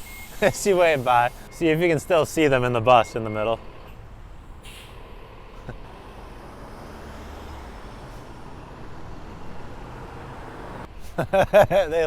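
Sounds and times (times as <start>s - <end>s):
bus engine rumbling: 0.0s - 12.0s
street traffic: 0.0s - 12.0s.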